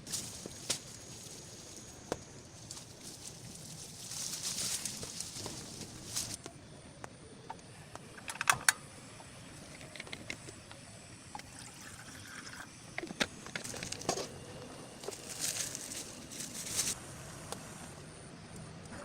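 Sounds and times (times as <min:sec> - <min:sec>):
steady background hiss: 0:00.0 - 0:19.0
objects being handled: 0:13.0 - 0:17.0.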